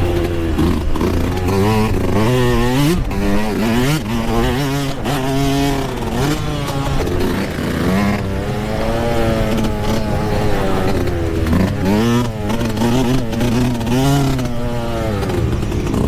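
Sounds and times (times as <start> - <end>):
motocross bike engine revving: 0.0 - 16.0.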